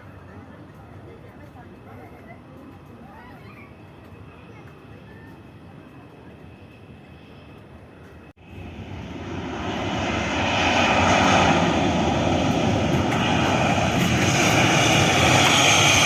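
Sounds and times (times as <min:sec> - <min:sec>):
airliner engines passing: 0:00.0 - 0:16.0.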